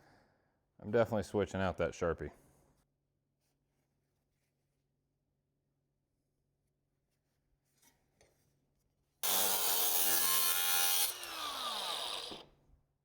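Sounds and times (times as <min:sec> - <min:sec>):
power grinder on sheet steel: 0:09.2 - 0:12.5.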